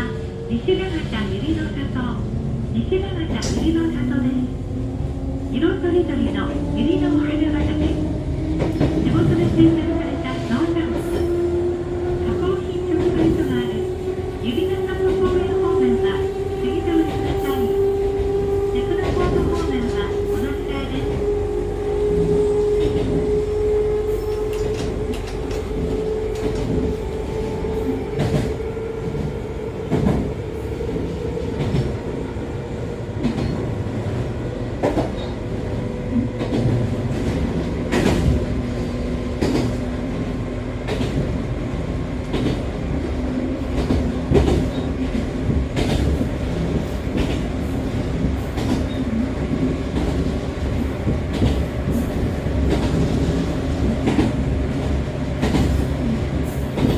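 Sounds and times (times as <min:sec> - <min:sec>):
wheels rumbling on rail: 0:00.0 - 0:56.9.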